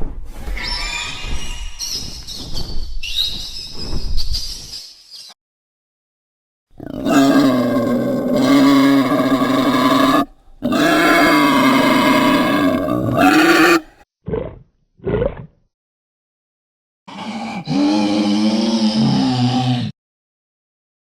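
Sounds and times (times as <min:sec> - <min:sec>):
monster roaring: 0:06.8 - 0:13.9, 0:17.1 - 0:20.0.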